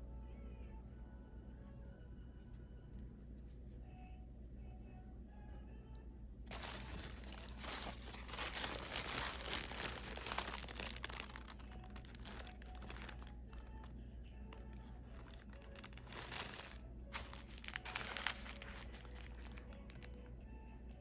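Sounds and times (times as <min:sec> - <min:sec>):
packing material crinkling: 0:06.5 - 0:13.9, 0:14.5 - 0:20.2.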